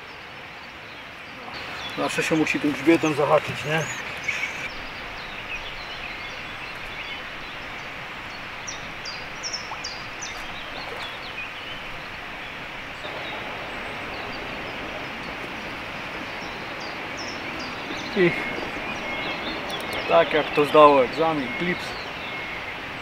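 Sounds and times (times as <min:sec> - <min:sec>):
outdoor background noise: 0:00.0 - 0:23.0
small bird chirping: 0:01.6 - 0:07.7, 0:16.4 - 0:22.9.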